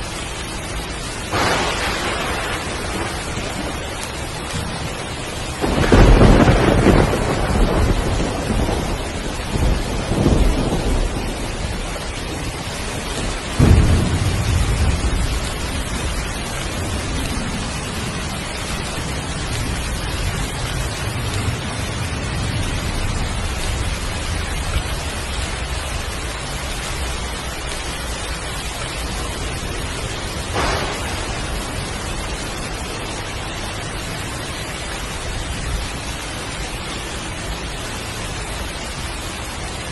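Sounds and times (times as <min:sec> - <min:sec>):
heavy steady rain: 0:00.0 - 0:39.9
thunder rumbling: 0:00.0 - 0:39.9
thunder crack: 0:01.3 - 0:18.4, 0:29.2 - 0:33.4.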